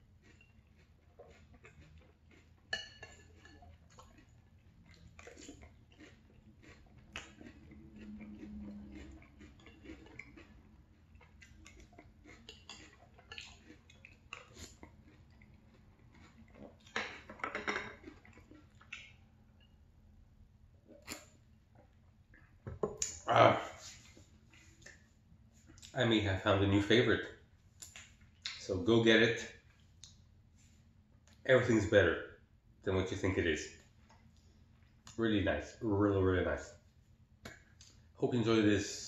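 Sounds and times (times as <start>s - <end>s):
chewing cereal: 0.0s - 19.8s.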